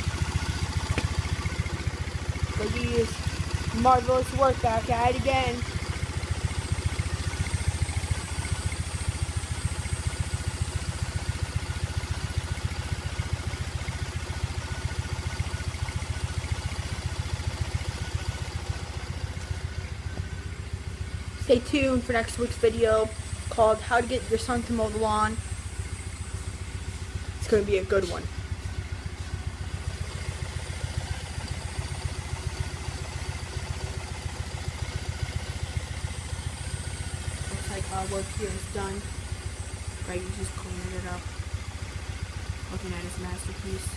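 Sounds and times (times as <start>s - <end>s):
motorcycle engine idling: 0.0s - 43.9s.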